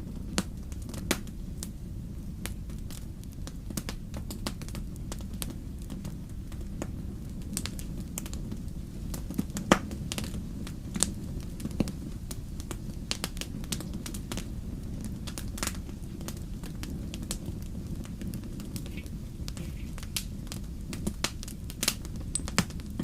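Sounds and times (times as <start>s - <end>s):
wood fire crackling: 0.0s - 23.0s
sharp pops of fire: 0.1s - 23.0s.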